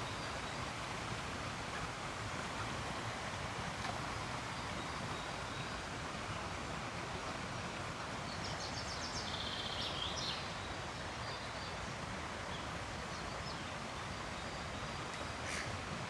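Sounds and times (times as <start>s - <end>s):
small bird singing: 8.3s - 10.6s.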